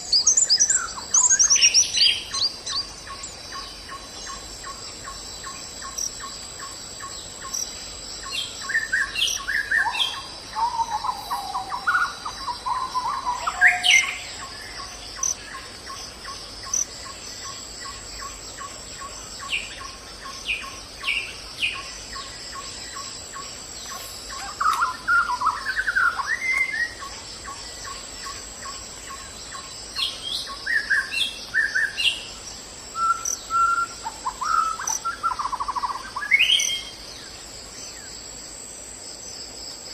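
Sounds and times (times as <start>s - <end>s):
high-pitched insect drone: 0.0s - 32.5s
forest birds singing: 0.0s - 39.9s.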